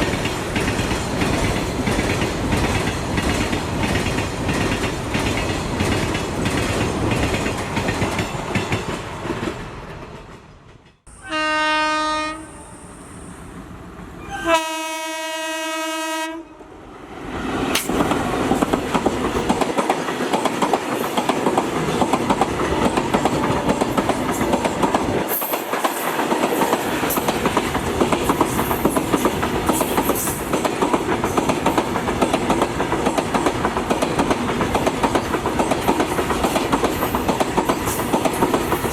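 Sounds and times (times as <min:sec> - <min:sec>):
train wheels clattering over rails: 0:00.0 - 0:11.1, 0:17.6 - 0:38.9
locomotive horn: 0:11.1 - 0:13.0, 0:14.2 - 0:16.6.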